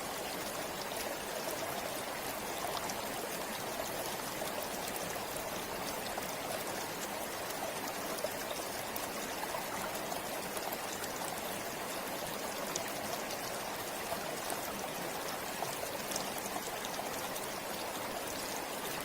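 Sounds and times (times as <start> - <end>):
river flowing over stones: 0.0 - 19.0.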